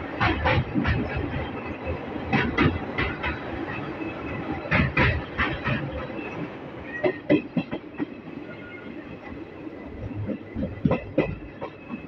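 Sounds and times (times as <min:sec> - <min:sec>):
train wheels clattering over rail joints: 0:00.0 - 0:08.7, 0:10.0 - 0:12.0
train running rumble: 0:00.0 - 0:12.0.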